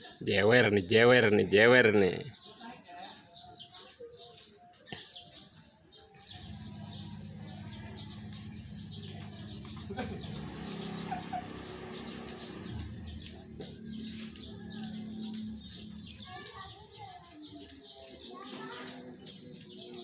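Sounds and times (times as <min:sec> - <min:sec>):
faint bird chirps: 0:00.0 - 0:20.0
cat purring: 0:06.2 - 0:16.0.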